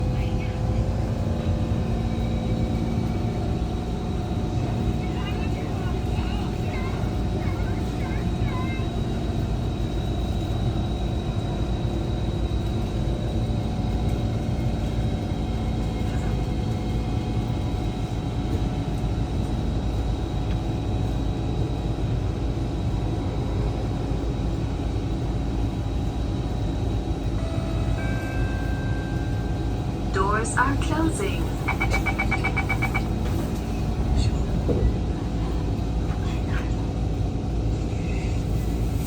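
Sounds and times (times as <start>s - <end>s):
train equipment hum and rumble: 0.0s - 39.0s
high steady whine: 27.4s - 34.8s.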